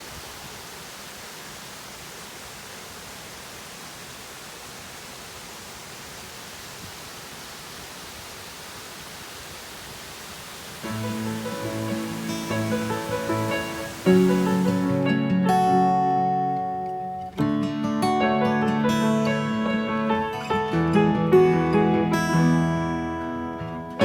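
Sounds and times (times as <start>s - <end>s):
steady rushing noise: 3.3s - 15.1s.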